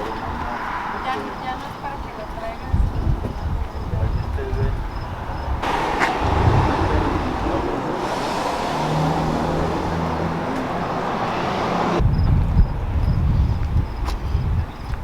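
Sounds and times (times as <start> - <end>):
vehicle road and engine noise: 0.0 - 15.0
low rumbling: 5.2 - 13.9.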